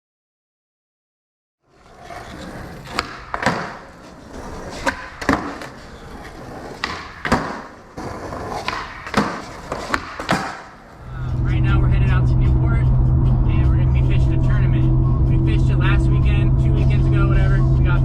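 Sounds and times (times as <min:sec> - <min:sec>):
wheels rolling over pavement: 0:01.6 - 0:12.2
wheels clacking over joints: 0:01.8 - 0:12.2.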